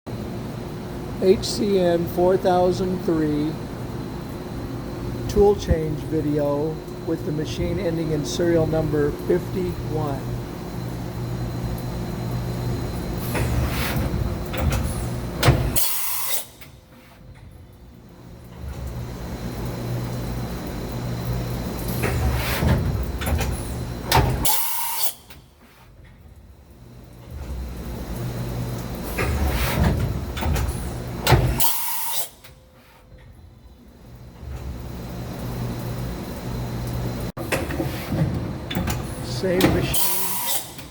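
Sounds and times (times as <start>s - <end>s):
steady low hum: 0.1s - 15.8s
machine hum: 0.1s - 31.7s, 32.3s - 40.9s
tool changer clicks and clunks: 37.4s - 40.9s.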